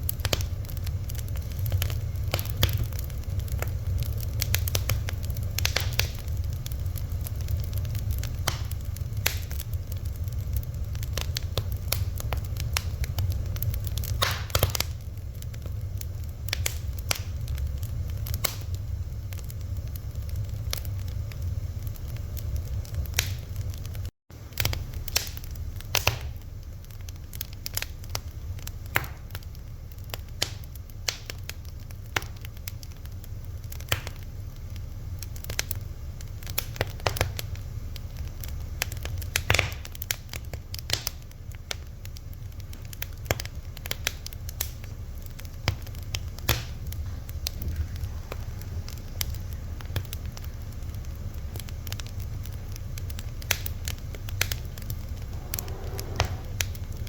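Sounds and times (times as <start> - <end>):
fire crackling and popping: 0.0 - 57.0
low rumble: 45.0 - 57.0.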